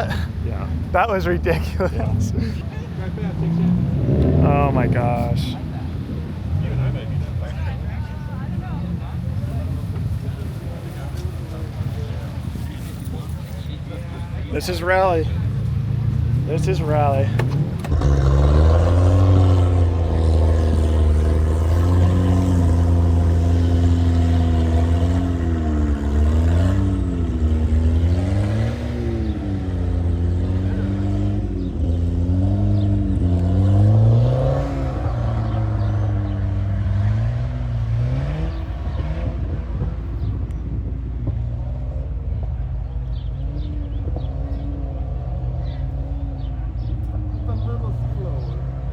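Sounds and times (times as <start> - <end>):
low car rumble: 0.0 - 48.9
rally car engine revving: 0.0 - 48.9.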